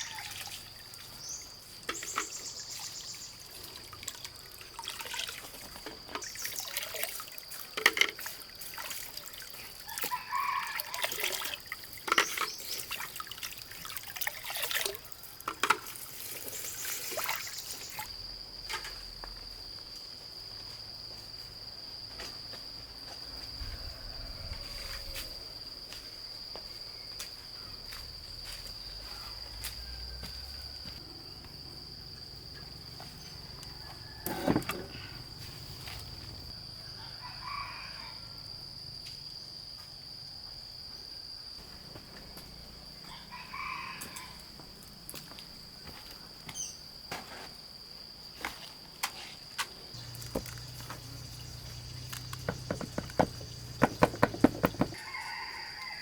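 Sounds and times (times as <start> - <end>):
crickets droning: 0.0 - 56.0
knocks and clicks: 52.3 - 55.0.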